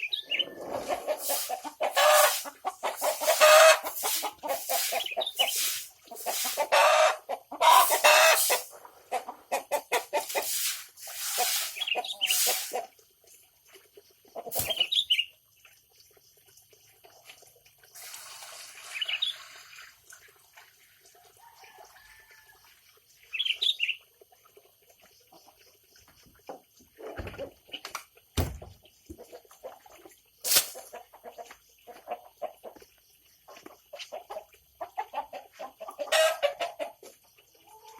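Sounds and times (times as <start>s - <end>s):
chicken clucking: 0.0s - 12.9s, 14.2s - 14.9s, 30.5s - 37.9s.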